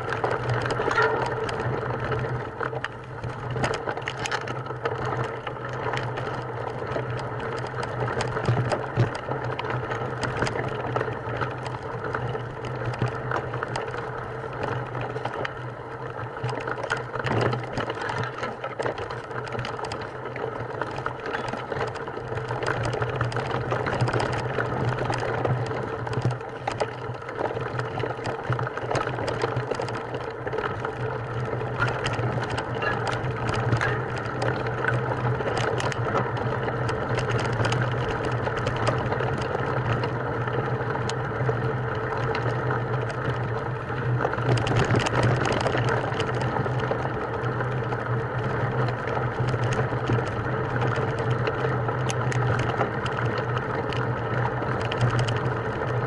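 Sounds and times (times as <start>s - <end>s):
rattling and clicking: 0.0s - 15.6s, 16.2s - 41.2s
small motor running: 0.0s - 56.0s.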